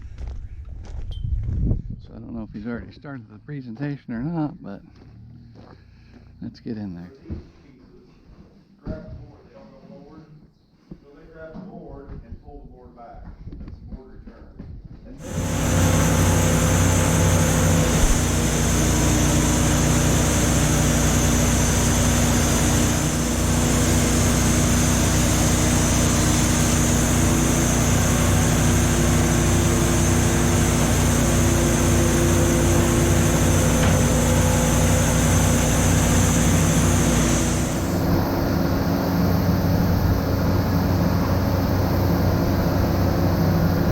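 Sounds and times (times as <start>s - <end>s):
high steady whine: 15.2s - 43.9s
sawmill machinery droning: 15.2s - 43.9s.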